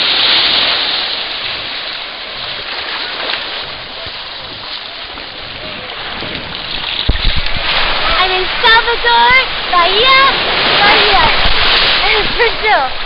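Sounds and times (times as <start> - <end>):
water rushing: 0.0 - 13.0
faint voices: 3.0 - 6.8.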